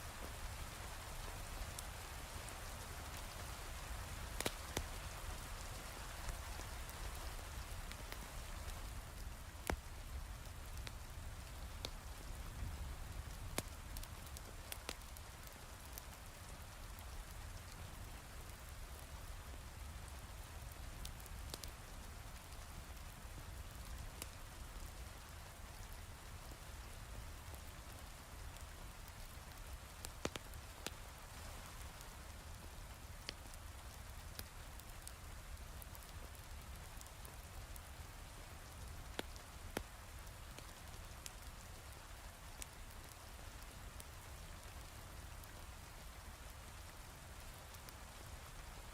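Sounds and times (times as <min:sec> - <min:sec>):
wood fire crackling: 0:00.1 - 0:48.9.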